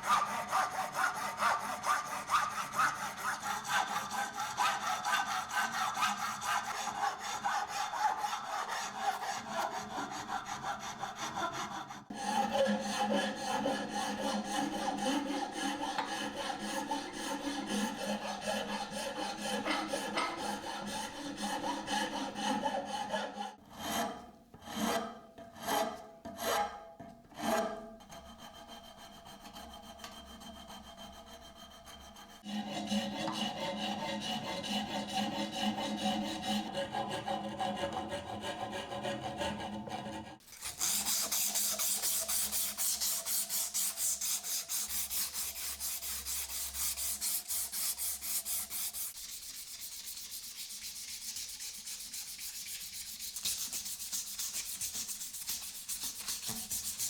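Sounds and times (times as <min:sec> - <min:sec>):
abrasive rubbing on wood: 0:13.4 - 0:23.0.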